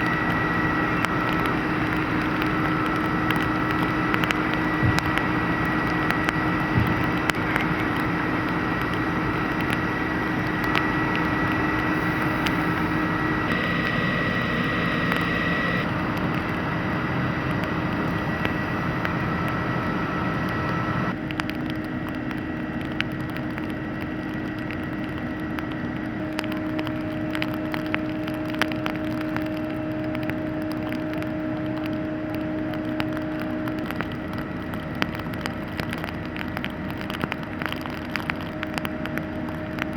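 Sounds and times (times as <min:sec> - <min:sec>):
steady tones: 0:00.0 - 0:21.2
faint crackles: 0:00.0 - 0:39.9
fire engine pump hum: 0:00.0 - 0:39.9.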